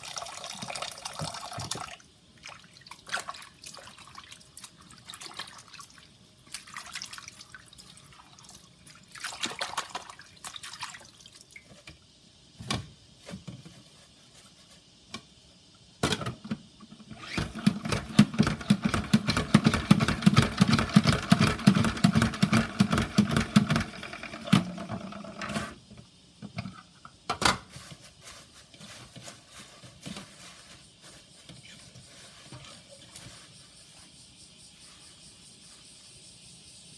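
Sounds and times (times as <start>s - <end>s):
water splashing and dripping: 0.0s - 11.7s
salad spinner clicking whir: 17.1s - 25.8s.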